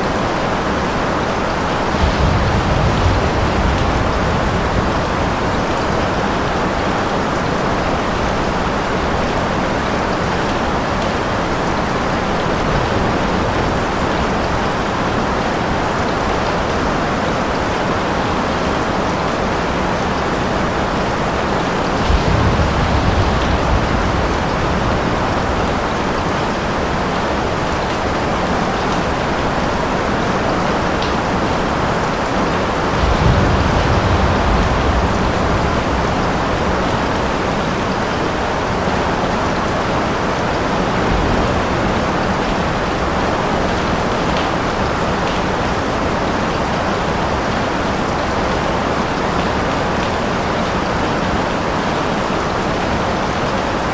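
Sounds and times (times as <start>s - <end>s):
heavy rain hissing: 0.0s - 49.0s
distant thunder rumbling: 1.4s - 8.4s, 20.2s - 45.4s.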